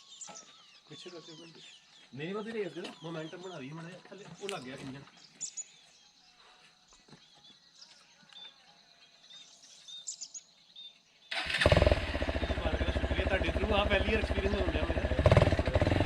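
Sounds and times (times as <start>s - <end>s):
faint bird chirps: 0.0s - 11.6s, 12.3s - 15.8s
motorcycle engine starting and running: 11.3s - 16.0s.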